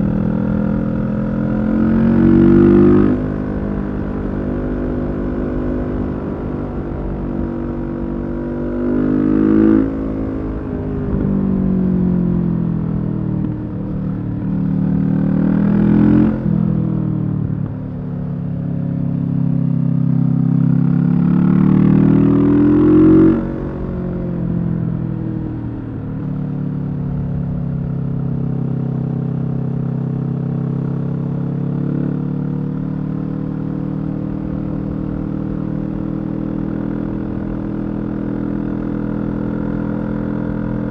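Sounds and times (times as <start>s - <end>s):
motorcycle engine revving: 0.0s - 18.0s, 19.2s - 26.5s, 27.1s - 40.9s.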